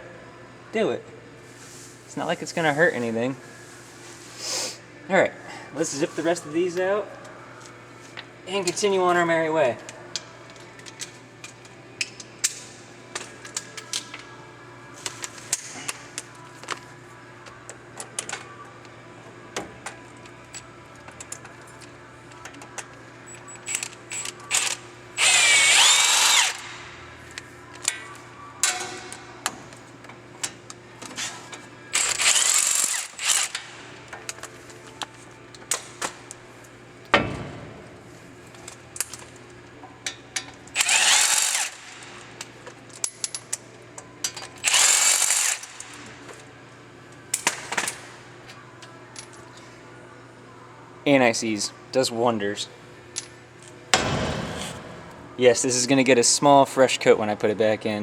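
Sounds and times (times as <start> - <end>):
power tool whining: 25.2 - 26.7.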